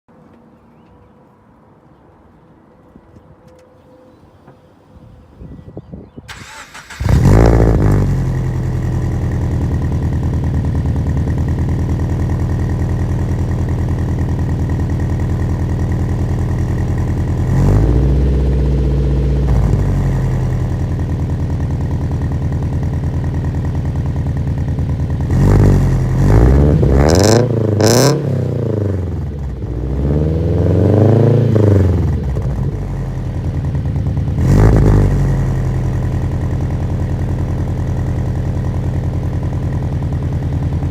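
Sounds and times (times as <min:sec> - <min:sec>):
engine revving: 0:06.3 - 0:15.6, 0:16.4 - 0:21.0, 0:25.2 - 0:33.4, 0:34.1 - 0:37.0
car engine idling: 0:06.3 - 0:40.9.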